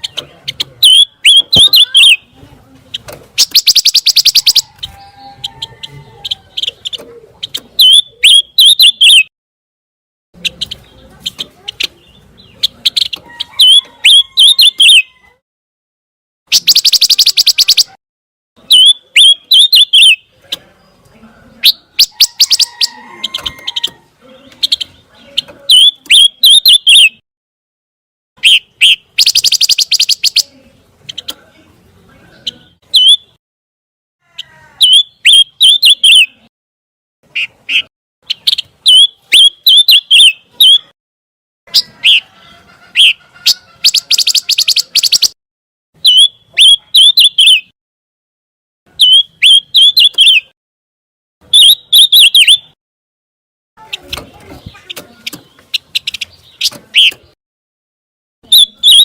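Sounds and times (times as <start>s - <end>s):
bird twittering chirps: 0.0s - 9.3s, 10.4s - 15.2s, 16.5s - 18.0s, 18.6s - 27.2s, 28.4s - 31.4s, 32.4s - 33.4s, 34.8s - 36.4s, 37.3s - 40.9s, 43.0s - 45.4s, 46.0s - 47.7s, 48.9s - 50.5s, 51.5s - 52.8s, 53.8s - 57.4s.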